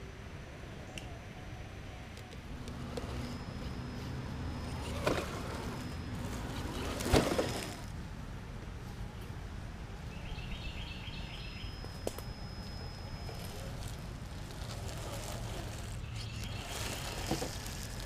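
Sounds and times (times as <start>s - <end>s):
songbird chirping: 9.0s - 18.0s.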